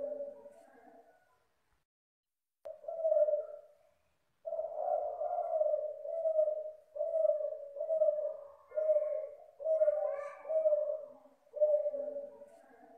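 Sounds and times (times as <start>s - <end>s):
dove cooing: 0.0s - 1.2s, 2.7s - 12.9s.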